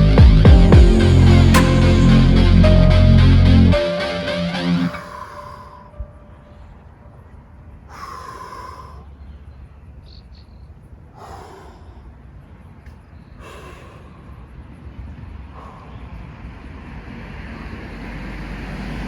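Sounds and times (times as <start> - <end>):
man breathing hard: 4.9 - 7.0, 7.8 - 9.6, 11.1 - 12.7, 13.3 - 16.6.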